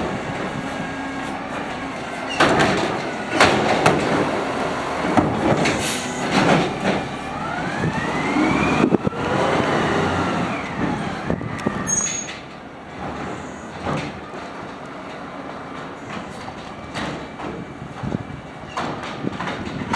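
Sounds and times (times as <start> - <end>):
hydraulic whine: 0.0 - 14.7
garbage truck engine idling: 0.0 - 19.8.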